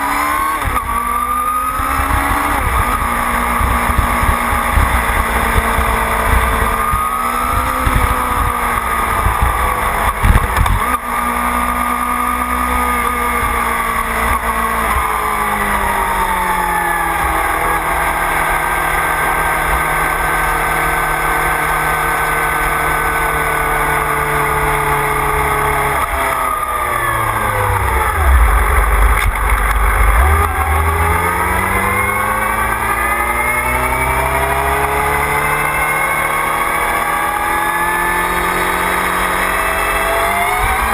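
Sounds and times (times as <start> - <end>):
motorcycle engine revving: 0.0 - 40.9
wind rushing: 26.3 - 33.0.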